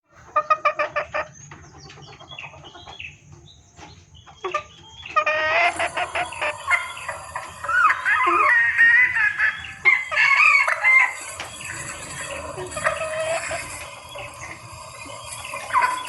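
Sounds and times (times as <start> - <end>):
junglefowl hen clucking: 0.1 - 16.0.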